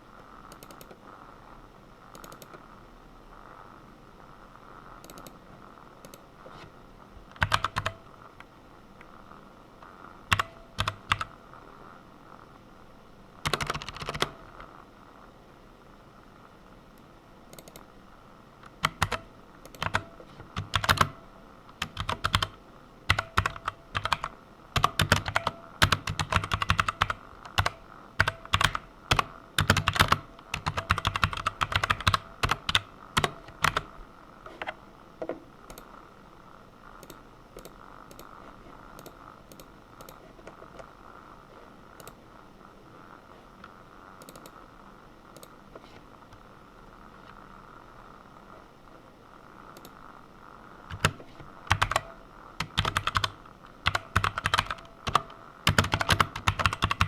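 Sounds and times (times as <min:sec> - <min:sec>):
steady low hiss: 0:00.0 - 0:57.0
computer keyboard typing: 0:00.5 - 0:01.0, 0:02.1 - 0:02.6, 0:05.0 - 0:05.4, 0:07.3 - 0:08.0, 0:10.2 - 0:11.4, 0:13.4 - 0:14.7, 0:17.5 - 0:17.9, 0:18.6 - 0:34.0, 0:37.0 - 0:38.4, 0:39.0 - 0:40.9, 0:44.2 - 0:44.6, 0:49.7 - 0:50.0, 0:50.9 - 0:57.0.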